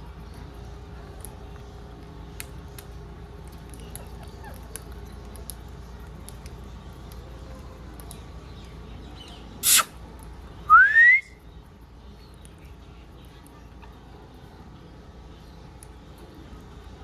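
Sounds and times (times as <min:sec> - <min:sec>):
low background hum: 0:00.0 - 0:17.0
parrot chirps: 0:09.6 - 0:10.0.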